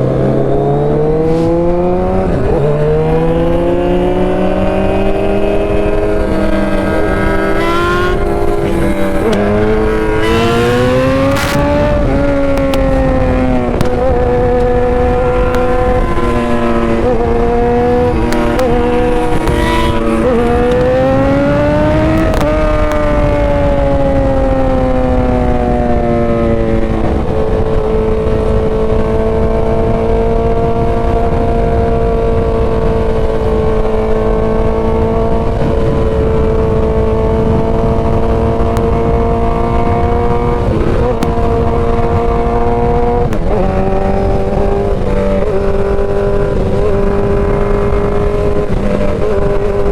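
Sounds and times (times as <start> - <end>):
motorcycle engine running: 0.0 - 49.9
wind on microphone: 0.0 - 49.9.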